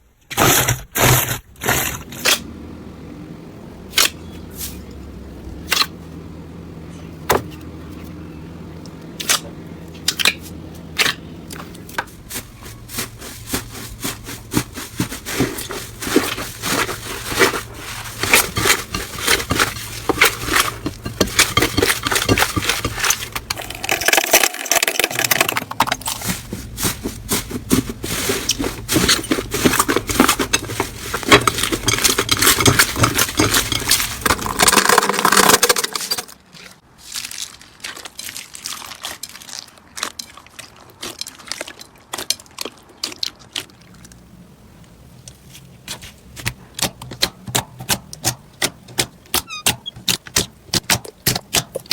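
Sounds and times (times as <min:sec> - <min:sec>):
slime squelching and crackling: 0:36.4 - 0:44.3.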